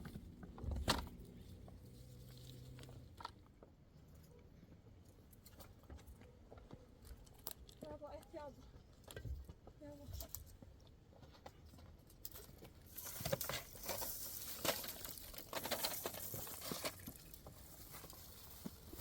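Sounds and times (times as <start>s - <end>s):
dry twigs rustling and crackling: 7.0s - 9.2s, 11.2s - 19.0s.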